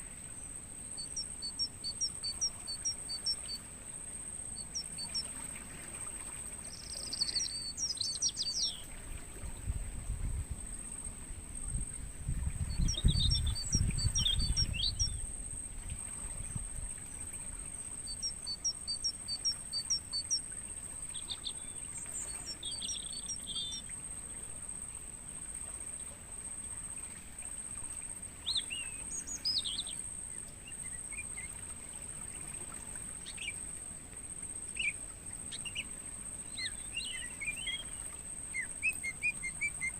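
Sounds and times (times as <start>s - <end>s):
songbirds chirping: 0.0s - 9.0s, 12.8s - 15.4s, 17.0s - 24.6s, 28.1s - 39.9s
crickets trilling: 0.0s - 39.9s.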